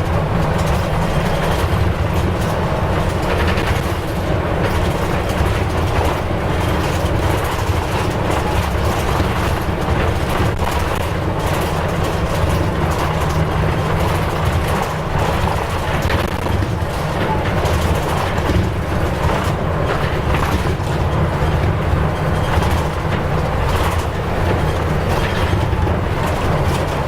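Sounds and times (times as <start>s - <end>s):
bus diesel engine droning: 0.0s - 27.0s
road noise: 0.0s - 27.0s.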